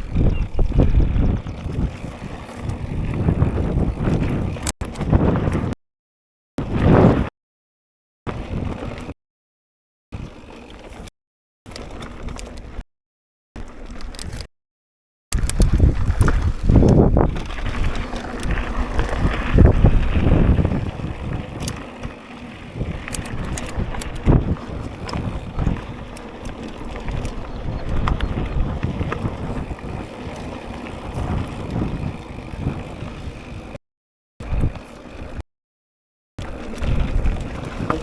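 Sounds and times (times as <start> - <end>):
bike tyres rumbling on dirt: 0.0 - 5.7, 6.6 - 7.3, 8.3 - 9.1, 15.4 - 33.8, 34.4 - 35.4, 36.4 - 38.0
wind buffeting microphone: 0.0 - 5.7, 15.4 - 33.7, 36.5 - 38.0.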